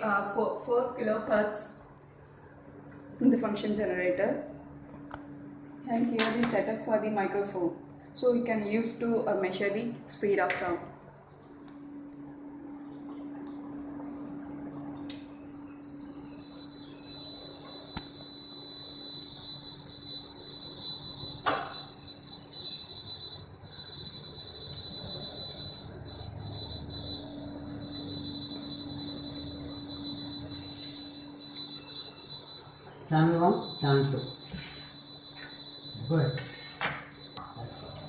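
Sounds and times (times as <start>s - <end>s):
low steady hum: 0.0s - 38.0s
high-pitched test tone: 15.9s - 38.0s.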